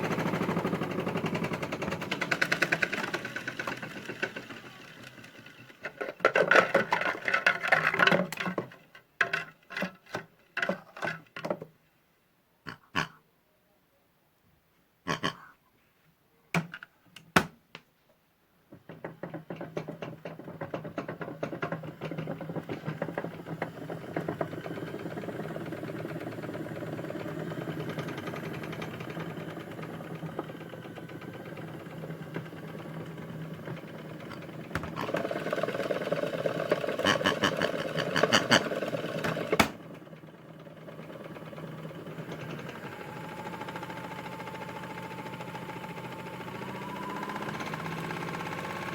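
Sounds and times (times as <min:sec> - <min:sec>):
small electric motor humming and rattling: 0:00.0 - 0:08.5, 0:19.2 - 0:48.9.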